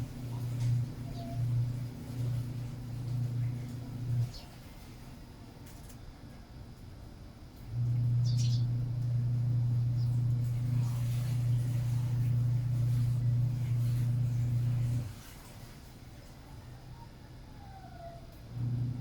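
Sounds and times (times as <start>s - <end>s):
steady low hum: 0.0s - 19.0s
sparrow chirp: 8.2s - 8.7s.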